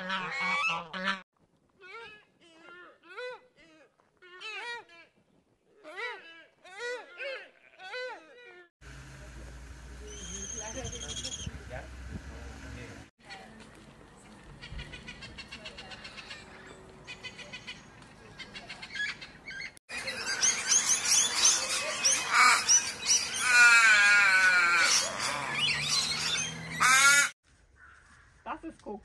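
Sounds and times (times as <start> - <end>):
mixed bird calls: 10.0 - 11.6, 14.1 - 28.4
parrots chirping: 10.1 - 11.6, 18.4 - 27.3.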